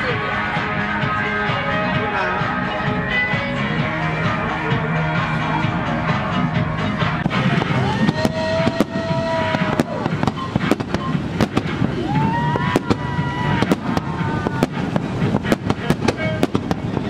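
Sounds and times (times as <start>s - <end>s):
fireworks bangs and crackles: 5.2s - 17.0s.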